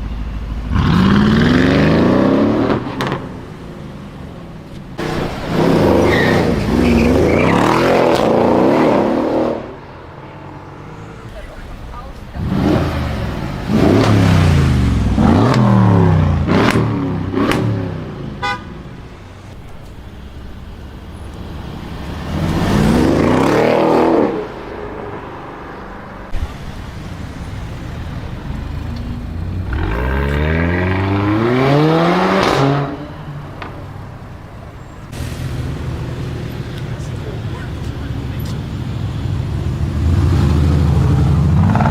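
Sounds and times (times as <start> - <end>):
car exhaust revving hard: 0.0 - 3.4, 11.6 - 18.6, 26.4 - 33.1.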